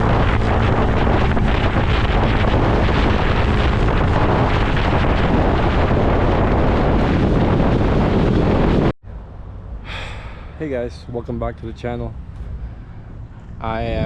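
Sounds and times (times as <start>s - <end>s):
wind buffeting microphone: 0.0s - 14.0s
faint low engine hum: 9.0s - 14.0s.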